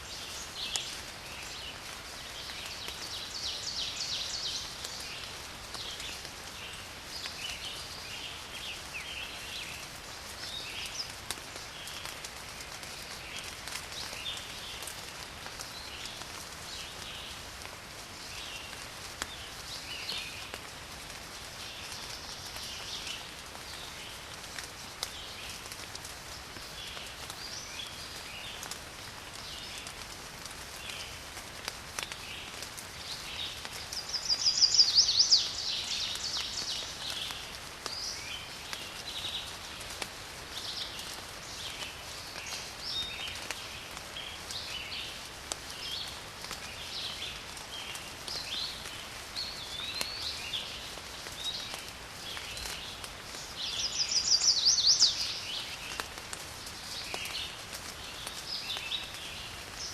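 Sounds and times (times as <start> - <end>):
rain pattering: 0.0 - 59.9
birds chirping: 33.9 - 37.3, 53.4 - 56.0.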